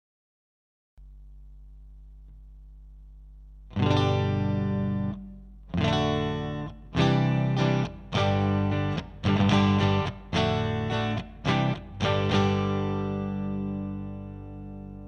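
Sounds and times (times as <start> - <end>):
amp hum: 1.0 - 15.0
distorted electric guitar strumming: 3.7 - 15.0.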